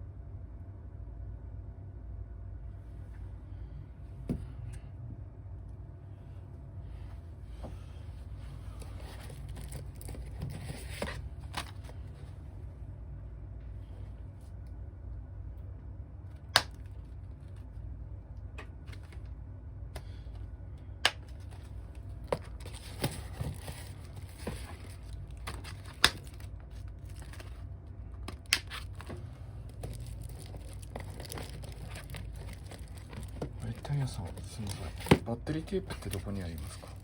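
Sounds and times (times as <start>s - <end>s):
steady low hum: 0.0s - 37.0s
crinkly rustling: 8.6s - 12.2s, 21.4s - 27.7s, 28.7s - 37.0s.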